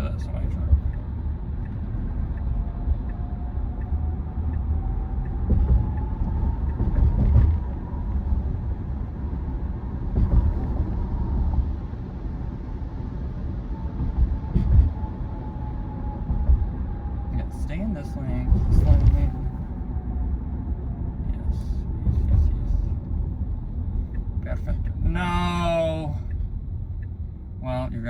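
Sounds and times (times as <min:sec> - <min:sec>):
road and tyre rumble in car: 0:00.0 - 0:28.0.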